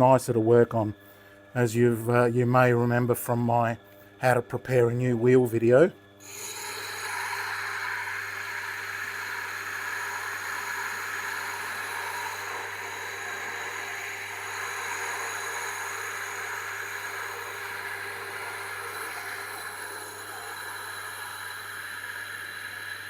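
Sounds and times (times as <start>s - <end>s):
machine low hum: 0.0s - 23.0s.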